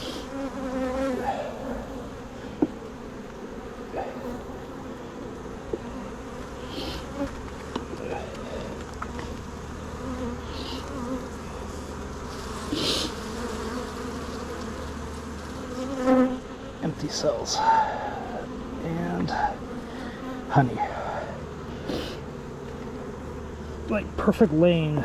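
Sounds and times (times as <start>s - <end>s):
honeybees buzzing: 0.0s - 25.0s
short hisses: 6.6s - 7.1s, 10.5s - 11.0s, 12.7s - 13.2s, 20.9s - 22.2s.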